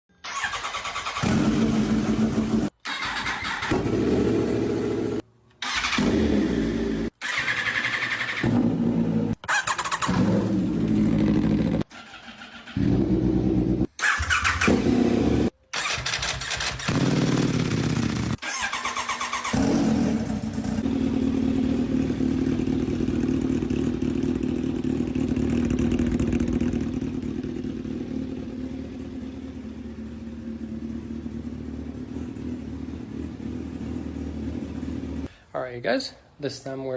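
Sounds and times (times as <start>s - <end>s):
motorcycle engines starting and revving: 0.2s - 35.3s
motorcycle engine idling: 19.5s - 35.3s.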